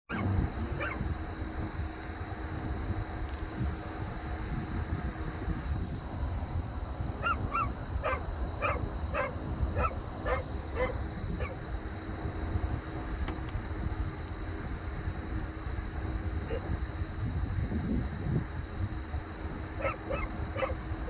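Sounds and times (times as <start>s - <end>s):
steady low rumble: 0.1s - 21.0s
dog barking: 0.8s - 1.0s, 7.2s - 11.6s, 16.5s - 16.7s, 19.8s - 20.9s.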